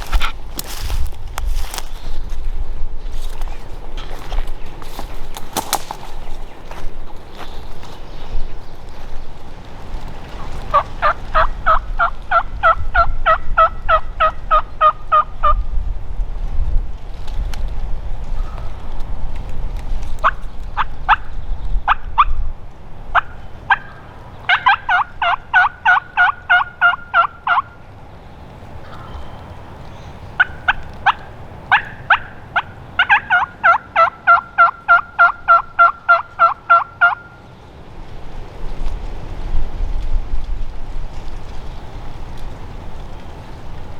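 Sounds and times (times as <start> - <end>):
wind rumble on microphone: 0.0 - 33.9, 35.0 - 43.9
turkey yelping: 10.7 - 15.3, 23.2 - 27.8, 28.6 - 37.4.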